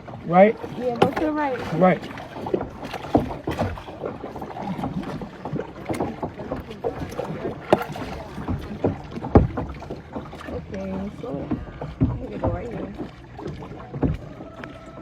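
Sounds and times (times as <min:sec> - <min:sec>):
paddles splashing in water: 0:00.0 - 0:15.0.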